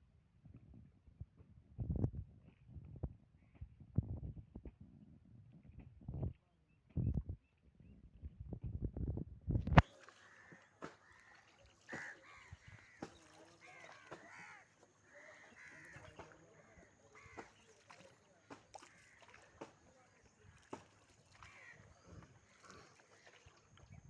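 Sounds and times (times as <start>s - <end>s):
crows cawing: 9.9s - 18.0s, 18.8s - 19.8s, 21.3s - 22.8s.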